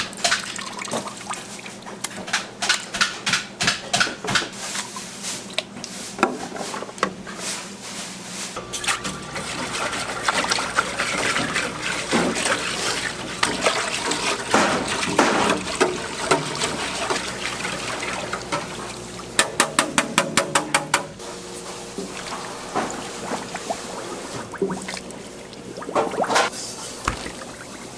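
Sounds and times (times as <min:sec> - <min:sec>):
kitchen clatter: 0:00.0 - 0:01.2, 0:08.7 - 0:21.2
running water: 0:08.6 - 0:19.8, 0:21.6 - 0:27.9.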